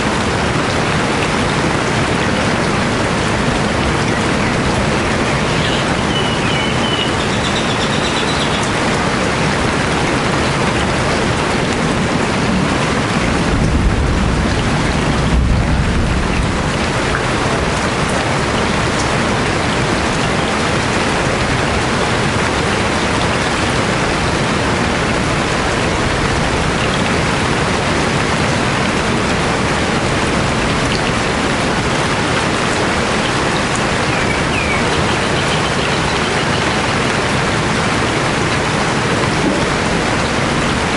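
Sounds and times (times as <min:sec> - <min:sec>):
steady rain falling: 0:00.0 - 0:40.9
faint bird chirps: 0:05.5 - 0:08.6.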